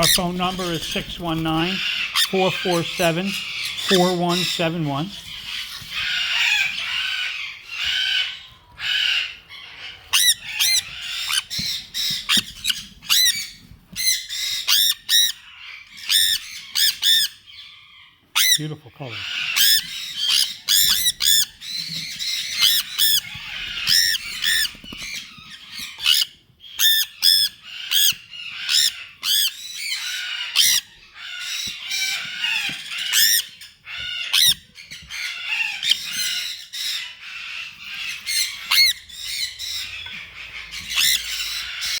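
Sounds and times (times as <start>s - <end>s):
parrot chicks squawking: 0.0s - 42.0s.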